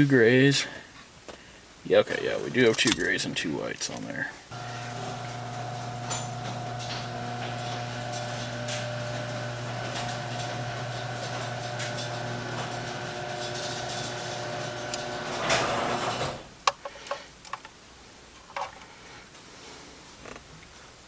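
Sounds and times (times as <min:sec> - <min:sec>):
electric motor hum: 0:04.5 - 0:16.5.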